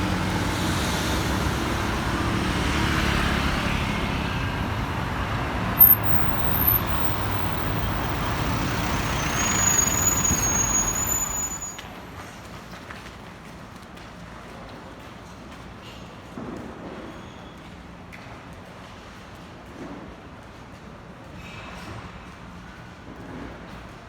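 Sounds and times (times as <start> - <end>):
traffic passing: 0.0 - 12.2
thin high-pitched squeal: 5.8 - 12.2
short sharp high squeal: 5.8 - 12.4.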